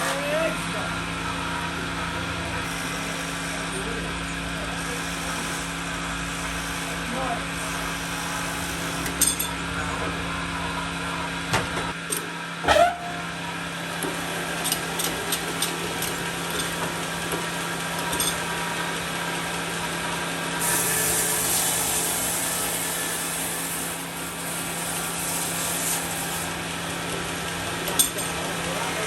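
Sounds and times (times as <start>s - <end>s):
machine humming: 8.0s - 29.0s.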